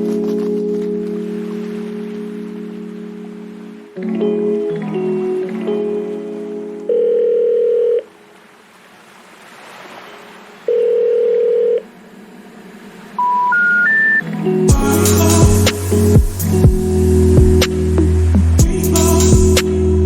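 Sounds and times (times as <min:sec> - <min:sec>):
music: 0:00.0 - 0:07.0, 0:14.2 - 0:20.0
long telephone beeps: 0:06.9 - 0:08.1, 0:10.7 - 0:11.8, 0:13.2 - 0:14.2.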